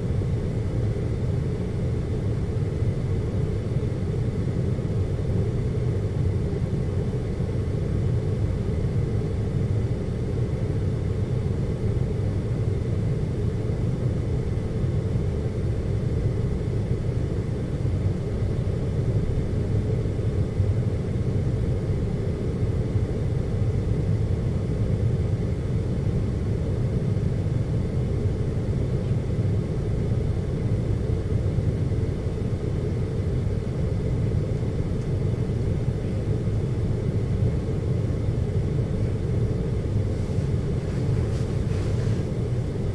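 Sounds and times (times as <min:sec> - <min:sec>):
air conditioner humming: 0:17.1 - 0:42.9.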